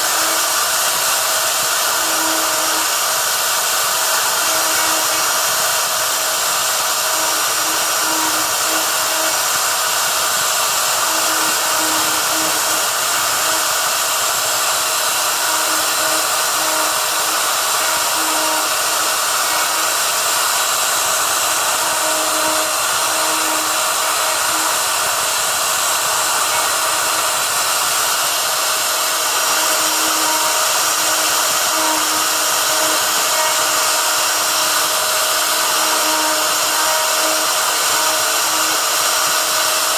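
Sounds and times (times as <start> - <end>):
router motor whine: 0.0 - 39.9.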